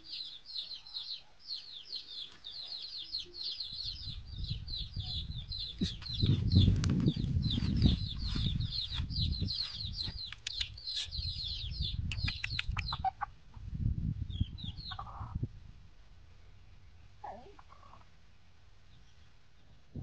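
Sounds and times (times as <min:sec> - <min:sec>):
hens chirping and clucking: 0:00.0 - 0:13.7, 0:14.4 - 0:15.5, 0:17.2 - 0:18.2
low rumble: 0:03.7 - 0:10.3.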